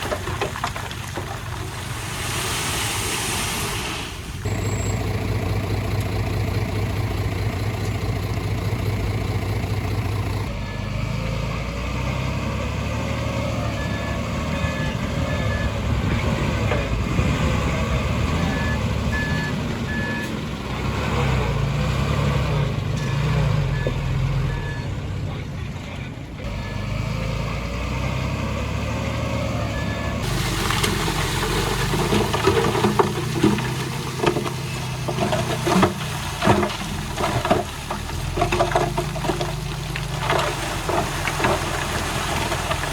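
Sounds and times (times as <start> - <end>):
diesel machinery engines running: 4.1 - 42.9
reversing alarm beeping: 29.6 - 30.2.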